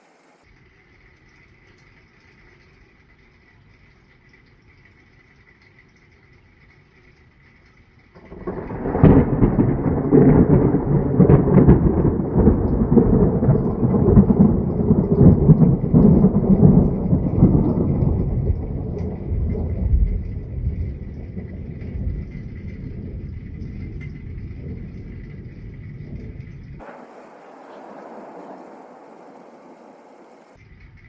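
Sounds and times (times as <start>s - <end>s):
thunder crack and rumble: 8.2s - 31.0s.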